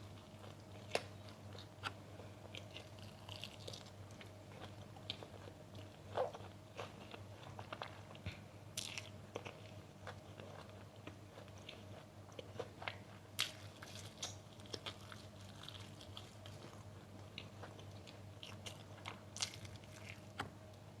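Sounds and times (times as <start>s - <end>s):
crunchy food being chewed: 0.0s - 20.8s.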